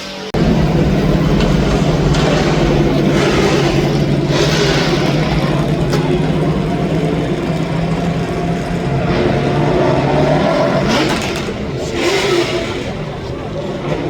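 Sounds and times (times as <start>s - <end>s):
car engine running loudly: 0.0s - 14.0s.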